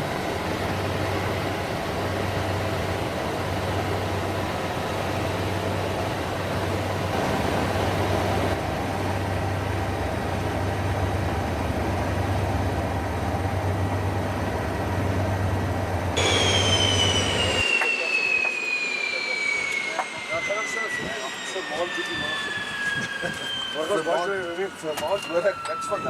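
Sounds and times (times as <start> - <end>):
helicopter engine and rotor: 0.0 - 26.0
high whine falling in pitch: 16.1 - 26.0.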